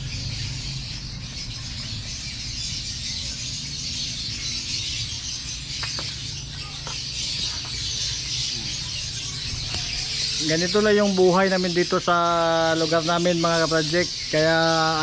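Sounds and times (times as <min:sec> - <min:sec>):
birds chattering chorus: 0:00.0 - 0:15.0.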